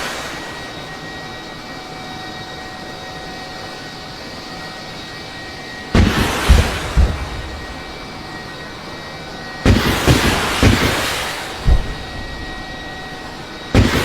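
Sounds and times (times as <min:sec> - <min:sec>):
explosion boom and rumble: 0:06.0 - 0:08.4, 0:09.6 - 0:14.0.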